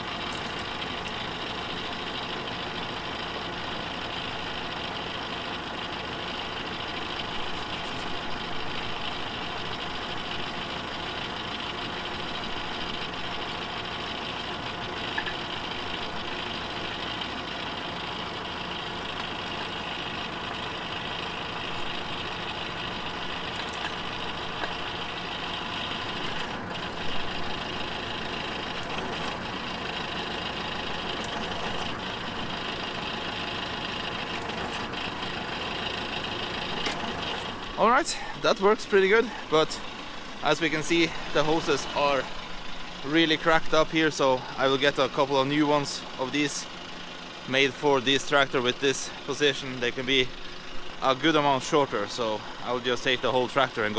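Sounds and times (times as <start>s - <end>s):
tractor engine idling: 0.0s - 53.9s.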